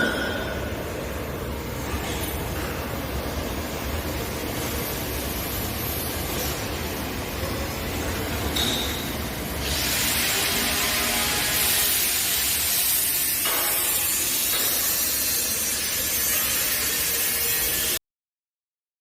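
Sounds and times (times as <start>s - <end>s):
vibrator on metal workpiece: 10.2s - 18.0s.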